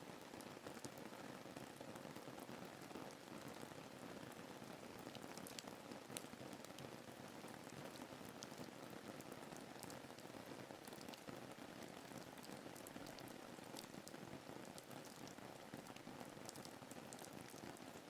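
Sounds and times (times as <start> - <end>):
sharp raindrop ticks: 5.1 - 6.9, 12.0 - 17.6.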